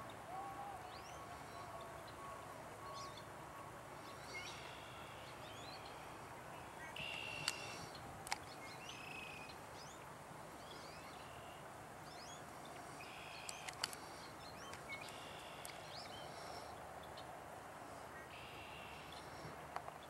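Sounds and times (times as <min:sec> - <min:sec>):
open-air background: 0:00.0 - 0:20.0
small birds chirping: 0:04.0 - 0:17.4
short sharp clicks: 0:07.0 - 0:08.4.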